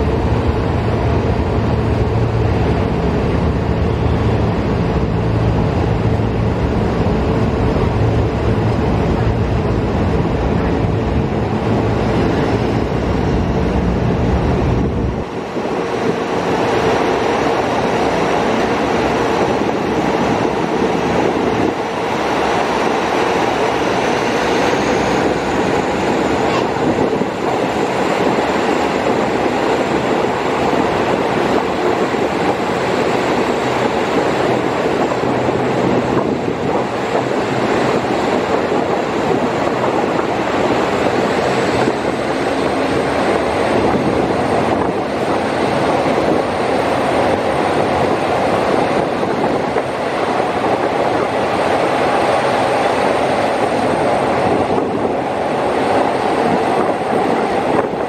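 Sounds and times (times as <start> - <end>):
wheels rumbling on rails: 0.0 - 58.0.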